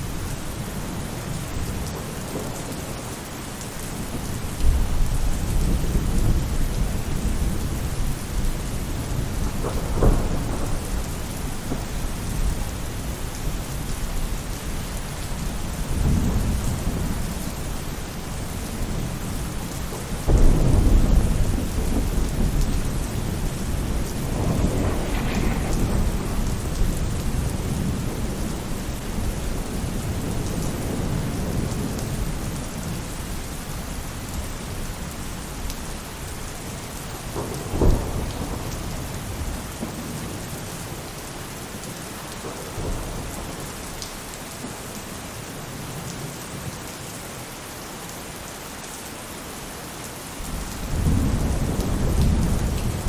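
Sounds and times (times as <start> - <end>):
rain falling on a roof: 0.0 - 53.0
thunder rumbling: 3.8 - 35.2, 36.1 - 41.1, 50.4 - 53.0.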